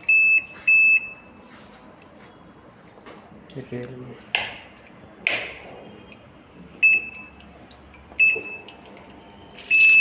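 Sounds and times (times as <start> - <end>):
washing machine beeps: 0.0 - 1.5, 6.8 - 7.4, 8.1 - 10.0.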